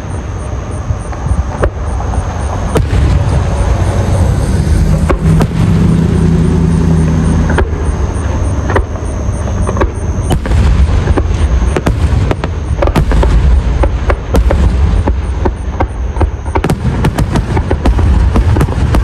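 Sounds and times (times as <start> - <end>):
steady pitched tone: 0.0 - 17.0
fireworks bangs and crackles: 0.0 - 19.0
fireworks rumble: 0.0 - 19.0.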